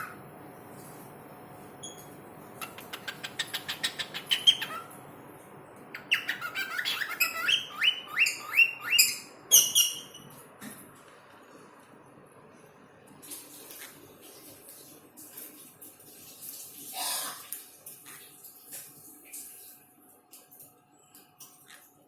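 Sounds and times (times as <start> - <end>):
bird whistled calls: 6.0 - 10.1.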